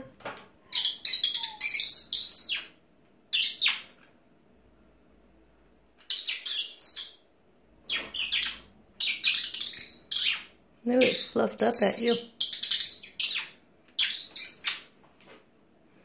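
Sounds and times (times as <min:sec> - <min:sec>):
songbird chirping: 0:00.7 - 0:04.0, 0:07.9 - 0:14.9.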